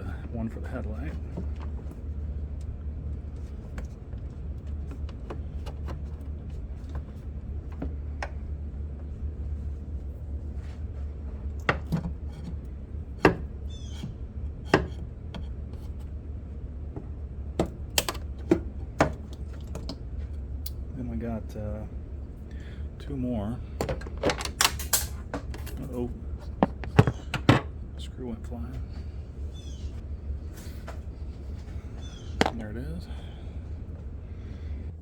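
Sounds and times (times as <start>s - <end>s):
steady low hum: 0.0s - 35.0s
plastic parts clicking and knocking: 17.6s - 20.0s, 23.8s - 25.8s, 26.4s - 27.7s
plastic squeak: 26.6s - 27.5s.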